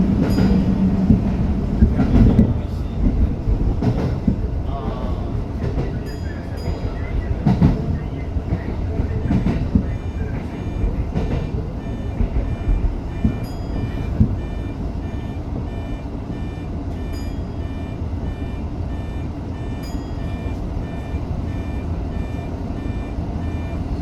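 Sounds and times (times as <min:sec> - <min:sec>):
train rumbling on tracks: 0:00.0 - 0:24.0
electronic warning beep: 0:06.0 - 0:24.0.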